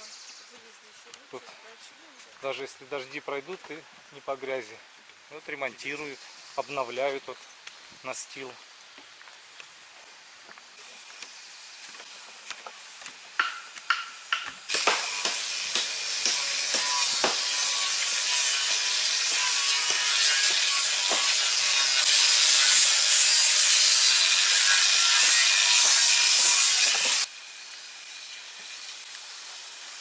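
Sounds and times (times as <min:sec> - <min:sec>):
power saw cutting wood: 0:11.1 - 0:30.0.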